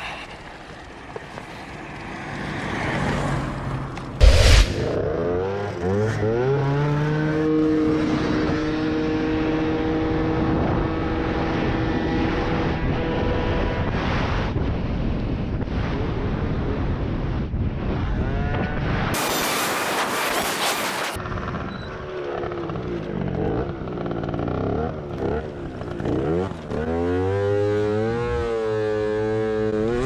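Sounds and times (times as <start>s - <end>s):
loud thump: 4.2s - 5.0s
vehicle engine speeding up: 4.2s - 10.0s.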